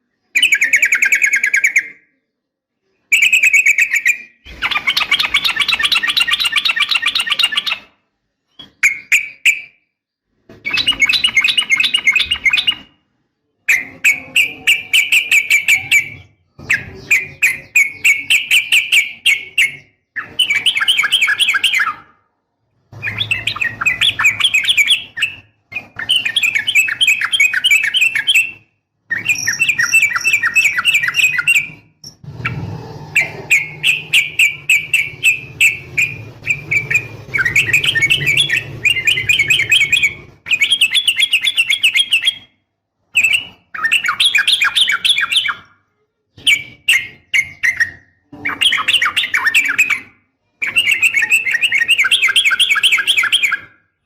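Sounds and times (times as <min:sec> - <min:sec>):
bird chattering calls: 0:03.2 - 0:07.9, 0:29.2 - 0:42.4.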